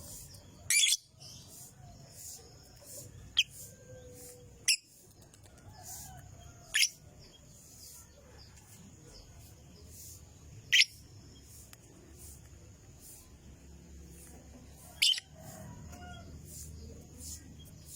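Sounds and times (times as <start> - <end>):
soft high bird chirping: 0.0 - 13.4, 14.2 - 17.9
lovebird sharp shrill chirps: 0.7 - 1.1, 10.7 - 11.0.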